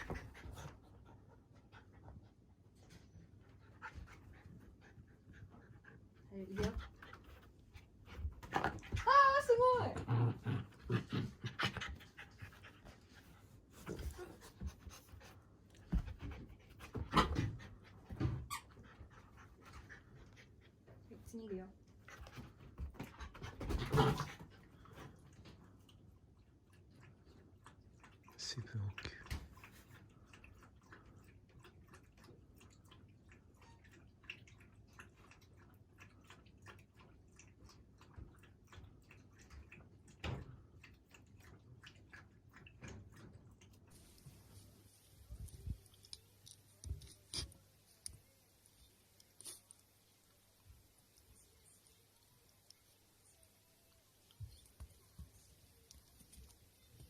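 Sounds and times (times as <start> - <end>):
dog panting: 0.0 - 9.1, 10.3 - 21.3.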